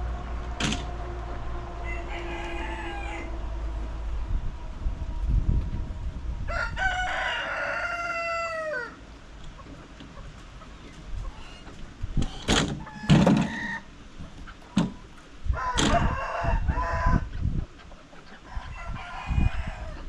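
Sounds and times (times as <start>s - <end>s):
rooster crowing: 1.4s - 3.7s, 6.4s - 9.0s, 15.5s - 17.3s, 18.5s - 20.0s.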